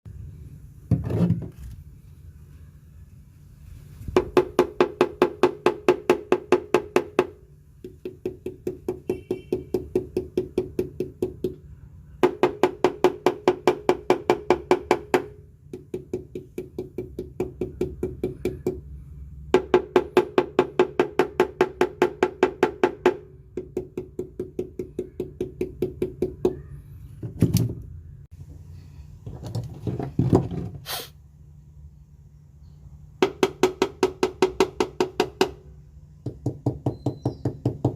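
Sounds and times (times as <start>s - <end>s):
knuckle rapping on sheet metal: 36.2s - 37.9s.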